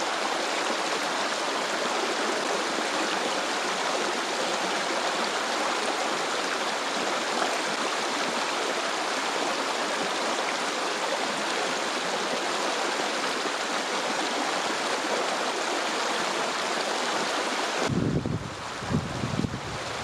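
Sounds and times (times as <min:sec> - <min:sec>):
flowing stream: 0:00.0 - 0:20.0.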